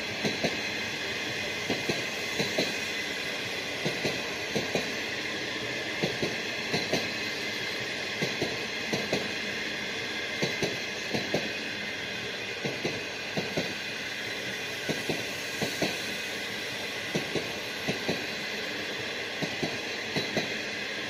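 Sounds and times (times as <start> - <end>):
train rumble with high whine: 0.0 - 21.0.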